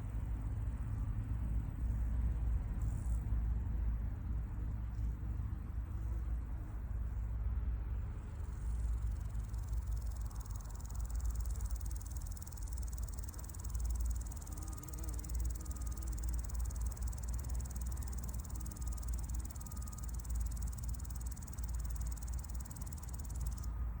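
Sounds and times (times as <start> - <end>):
grasshopper stridulating: 8.2 - 23.9.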